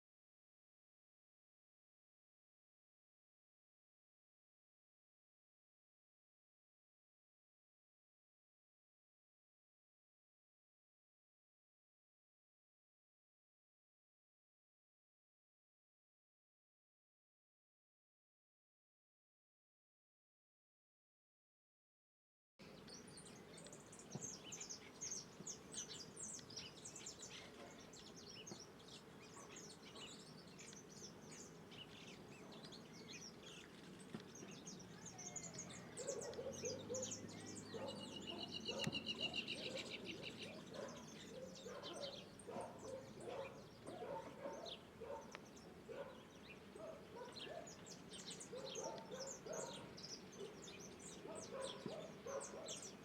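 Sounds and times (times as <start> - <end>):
birds chirping: 22.6 - 53.0
lower fuller bird calls: 34.4 - 53.0.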